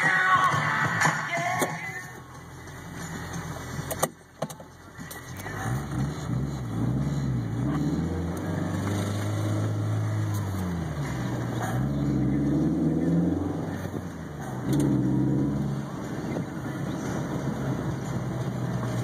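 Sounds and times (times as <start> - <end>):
music: 0.0 - 14.2
car engine revving: 0.0 - 19.0.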